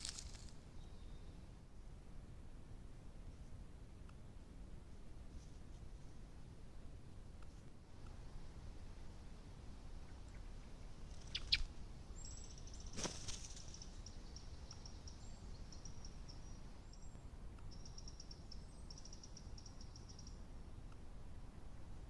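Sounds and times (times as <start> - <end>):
songbird trilling: 10.0 - 13.0, 13.6 - 17.1.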